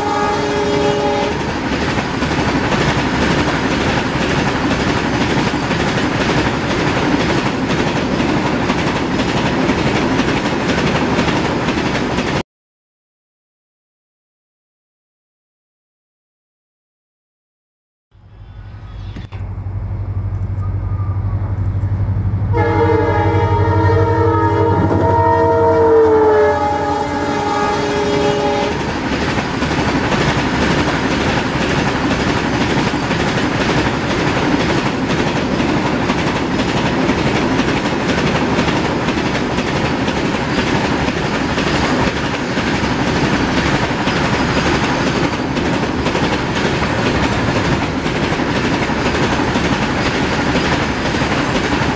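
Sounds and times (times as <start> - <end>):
train horn: 0.0 - 1.5, 20.6 - 29.0
train wheels clickety-clack: 0.4 - 12.4, 27.9 - 51.9
low steady hum: 18.2 - 22.6.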